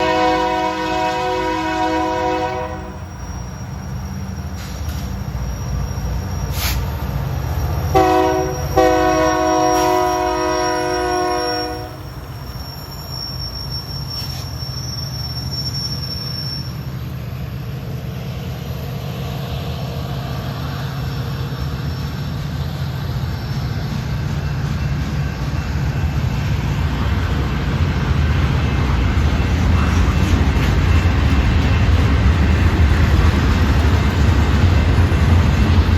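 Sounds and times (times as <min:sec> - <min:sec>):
model train air horn: 0:00.0 - 0:03.1, 0:07.9 - 0:12.3.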